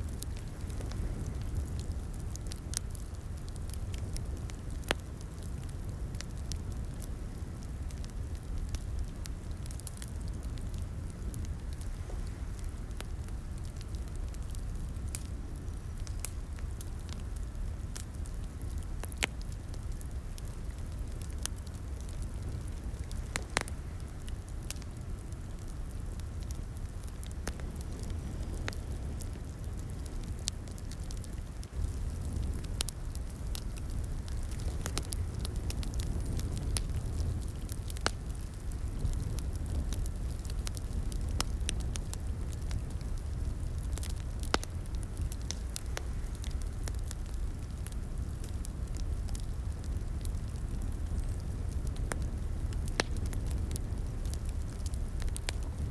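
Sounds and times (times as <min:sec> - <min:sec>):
fire pops and snaps: 0:00.0 - 0:55.9
wood fire crackling: 0:00.0 - 0:55.9.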